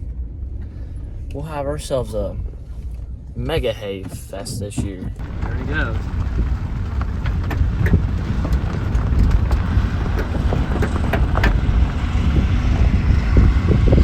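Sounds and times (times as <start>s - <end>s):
farm machine rumbling: 3.5s - 14.0s.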